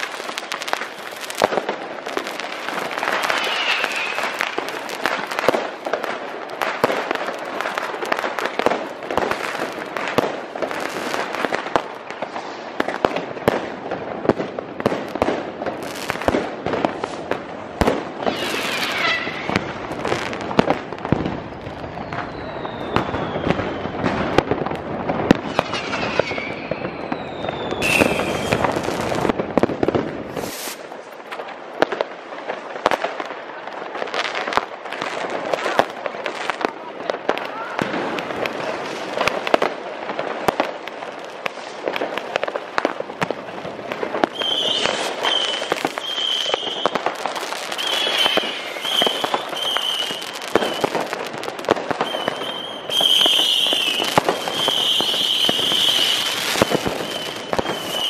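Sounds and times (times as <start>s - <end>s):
firecracker bangs and crackle: 0.0s - 58.0s
falling firework whistles: 2.3s - 5.6s, 18.2s - 20.3s, 21.2s - 24.4s, 25.1s - 29.4s, 30.3s - 30.9s, 44.2s - 58.0s
rocket bursts: 2.9s - 5.3s, 17.9s - 20.6s, 25.2s - 30.9s.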